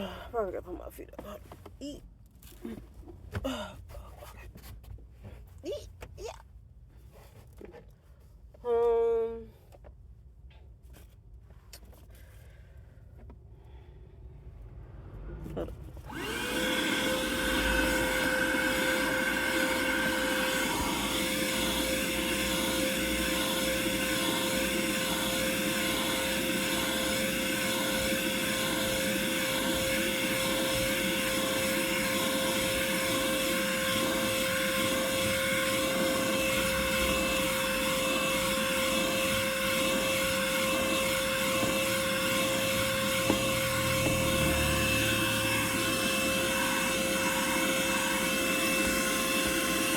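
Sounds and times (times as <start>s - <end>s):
vacuum cleaner running: 15.3s - 49.9s.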